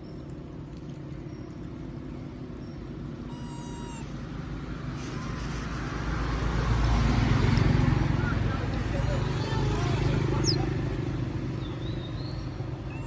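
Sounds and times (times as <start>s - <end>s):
monkey crying call: 3.2s - 4.2s, 8.7s - 10.9s
faint short squeak: 3.3s - 4.2s, 5.0s - 6.5s.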